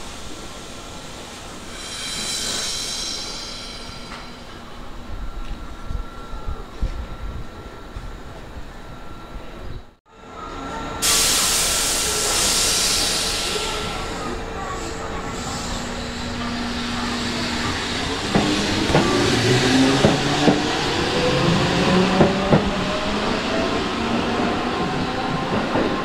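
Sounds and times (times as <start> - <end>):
train motor whine: 1.6 - 26.0
compressed air hiss: 1.7 - 4.5, 11.0 - 14.4.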